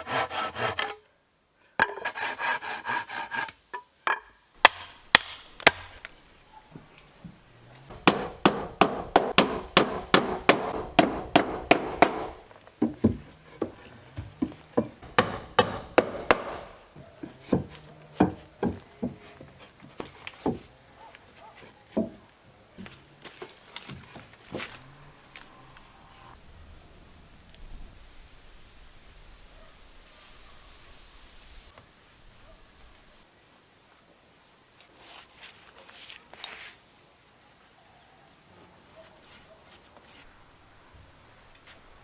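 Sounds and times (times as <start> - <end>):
hand tool chopping wood: 4.6 - 6.3, 7.9 - 19.2.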